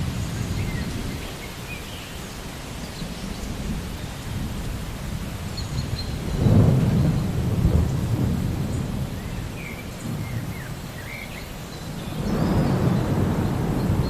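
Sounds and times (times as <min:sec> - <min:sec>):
steady rain: 0:00.0 - 0:14.0
rolling thunder: 0:03.5 - 0:11.0, 0:11.8 - 0:14.0.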